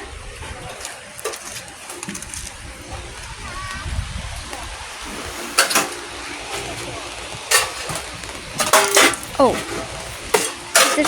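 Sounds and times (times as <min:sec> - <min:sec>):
rain falling: 0:00.0 - 0:11.0
knocks and splashes: 0:04.5 - 0:11.0.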